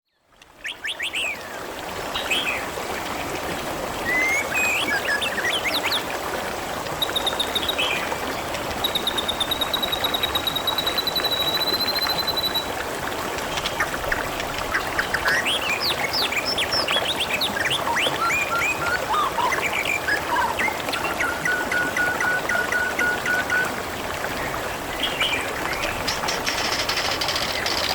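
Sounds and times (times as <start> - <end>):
water trickling and splashing: 0.2 - 27.9
birds chirping and trilling: 24.4 - 27.9.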